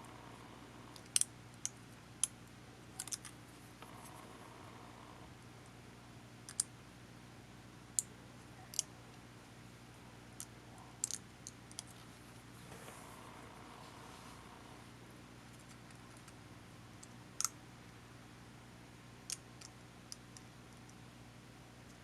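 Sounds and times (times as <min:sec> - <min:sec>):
faint steady hum: 0:00.0 - 0:22.0
small parts clicking and tapping: 0:00.9 - 0:02.4, 0:03.0 - 0:04.1, 0:06.4 - 0:06.7, 0:10.4 - 0:12.0, 0:15.5 - 0:17.6, 0:19.3 - 0:21.0.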